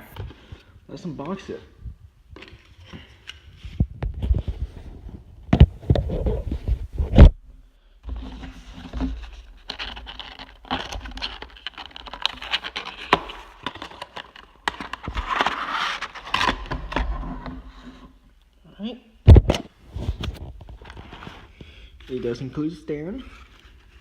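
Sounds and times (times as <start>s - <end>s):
packaging scraping and crinkling: 8.1s - 18.1s.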